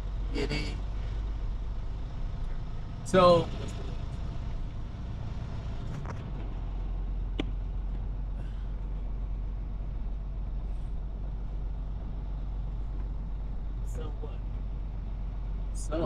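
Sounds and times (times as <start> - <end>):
semi truck rumble: 0.0 - 16.0.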